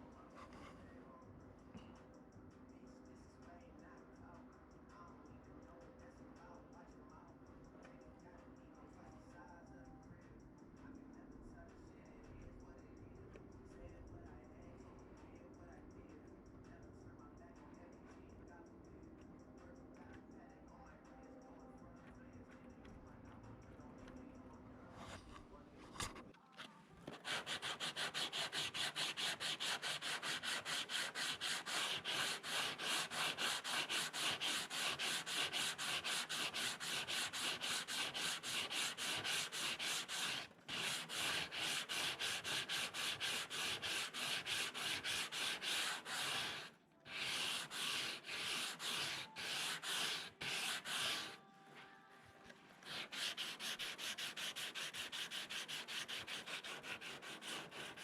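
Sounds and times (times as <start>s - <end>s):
sandpaper rubbing on fibreglass: 27.1s - 51.4s, 52.8s - 58.0s.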